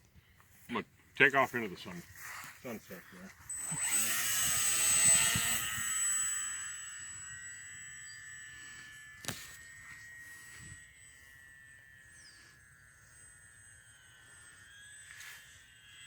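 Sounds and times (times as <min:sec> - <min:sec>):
model plane motor whine: 0:03.3 - 0:16.0.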